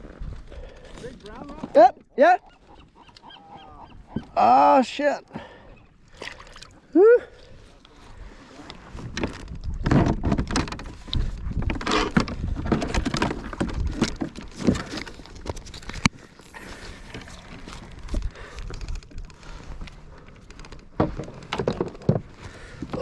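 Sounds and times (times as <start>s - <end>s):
fish and fishing gear clattering: 9.0s - 23.0s.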